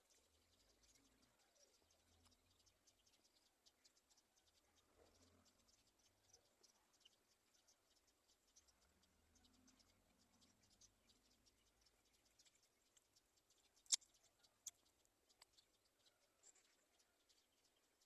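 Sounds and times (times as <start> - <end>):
faint high ticks: 11.8 - 16.8
sharp clicks: 13.8 - 14.8.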